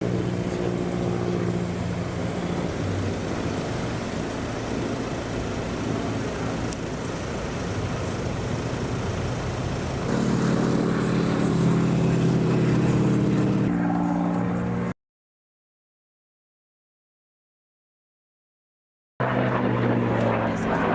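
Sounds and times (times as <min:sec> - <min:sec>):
propeller aircraft engine droning: 0:00.0 - 0:15.0, 0:19.2 - 0:20.9.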